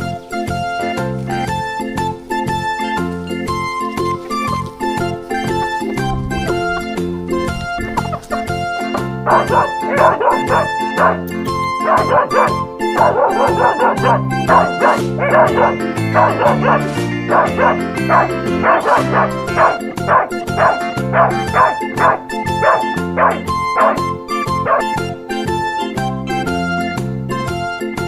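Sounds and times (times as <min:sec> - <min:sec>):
upbeat background music: 0:00.0 - 0:28.0
dogs barking: 0:04.1 - 0:25.6.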